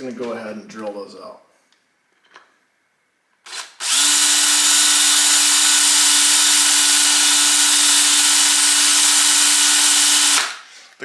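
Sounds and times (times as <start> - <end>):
power drill drilling metal: 3.5 - 10.7.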